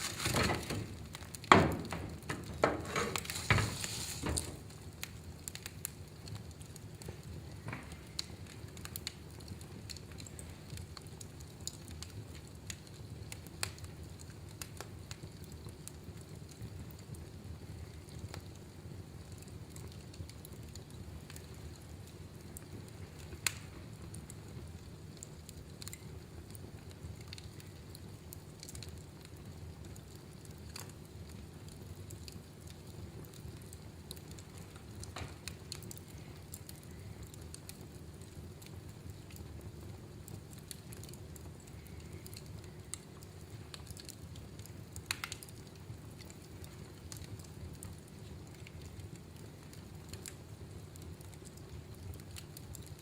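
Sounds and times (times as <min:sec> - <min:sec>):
fire crackles and pops: 0:00.0 - 0:53.0
fire rumbling: 0:00.0 - 0:53.0.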